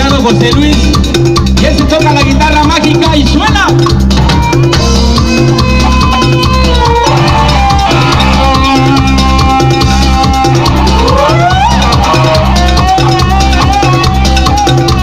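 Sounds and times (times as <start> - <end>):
bass and percussion: 0.0 - 15.0
lead guitar solo: 4.2 - 15.0.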